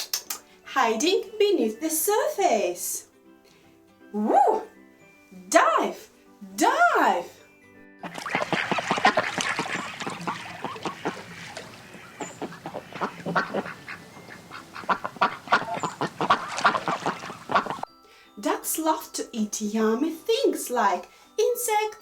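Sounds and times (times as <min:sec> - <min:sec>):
waterfowl quacking and honking: 0:08.0 - 0:17.9.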